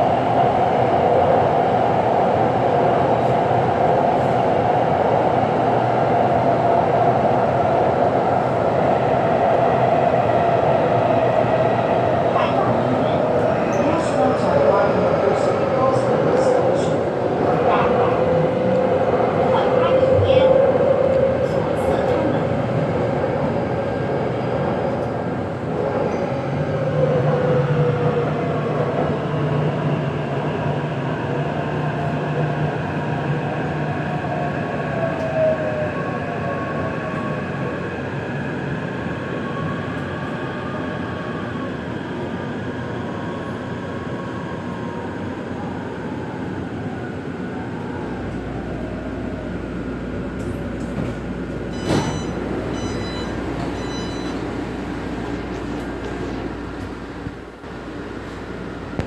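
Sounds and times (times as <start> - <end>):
train wheels and motors rumbling: 47.8 - 59.0.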